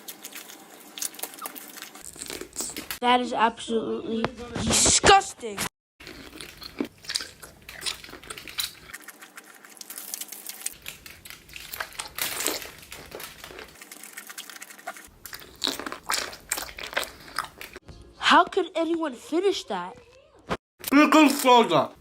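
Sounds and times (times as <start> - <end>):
crunchy snack being chewed: 0.0 - 3.0, 6.0 - 17.8.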